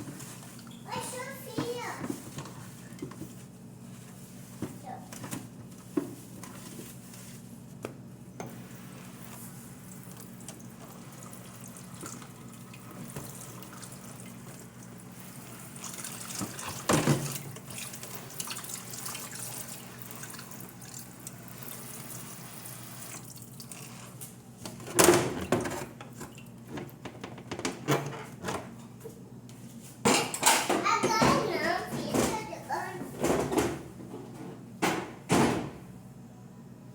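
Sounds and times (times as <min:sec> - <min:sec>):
water running: 0:08.5 - 0:24.2.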